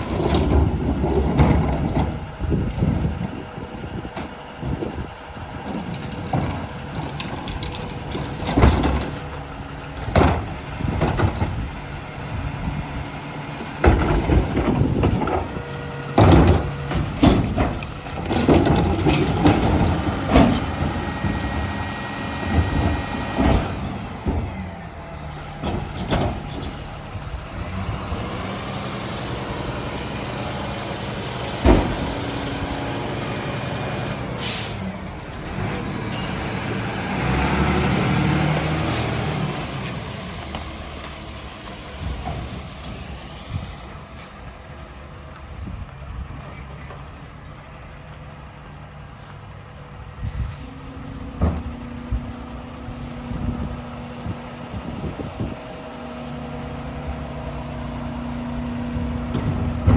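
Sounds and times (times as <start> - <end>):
diesel engine running: 0.0 - 59.9
metal clanks and bangs: 13.8 - 21.7, 31.6 - 32.3, 58.8 - 59.9.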